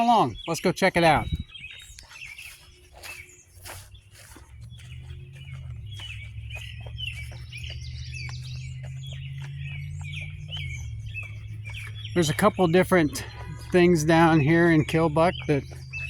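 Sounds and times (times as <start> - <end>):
birds chirping: 0.0 - 16.0
footsteps on path: 0.0 - 16.0
low steady rumble: 3.7 - 16.0.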